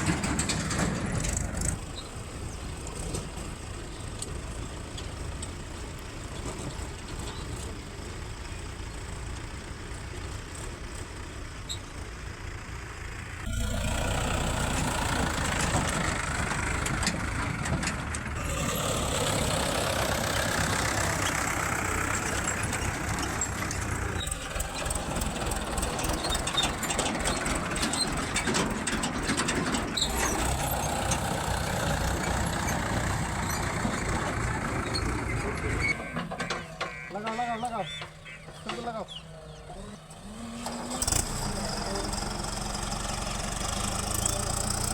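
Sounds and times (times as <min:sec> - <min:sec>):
heavy diesel machinery running: 0:00.0 - 0:44.9
scattered knocks: 0:36.2 - 0:39.0.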